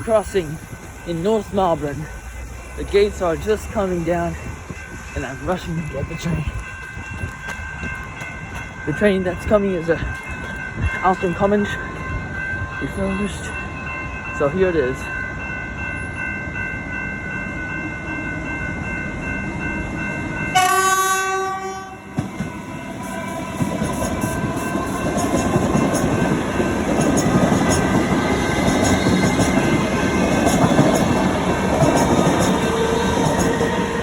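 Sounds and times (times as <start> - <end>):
train wheels clattering on rails: 0.0 - 13.4, 22.0 - 34.0
level crossing bell ringing: 0.0 - 22.9
train horn: 20.5 - 25.4.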